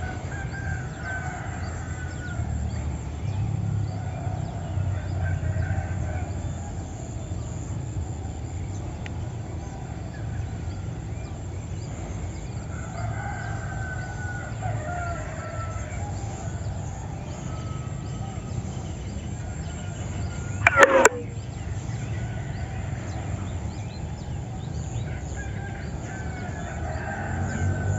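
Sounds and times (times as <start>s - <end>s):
rooster crowing: 0.0s - 7.6s, 12.6s - 21.5s, 24.8s - 27.9s.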